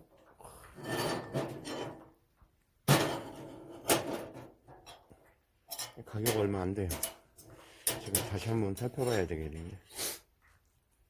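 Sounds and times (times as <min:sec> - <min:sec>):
metal scraping: 0:00.6 - 0:02.1, 0:05.7 - 0:09.8
metal clanks: 0:02.9 - 0:09.6.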